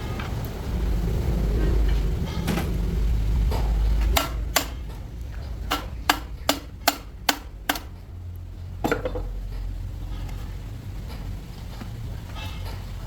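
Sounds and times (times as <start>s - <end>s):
steady low hum: 0.0s - 13.0s
sharp metallic taps: 5.6s - 8.0s.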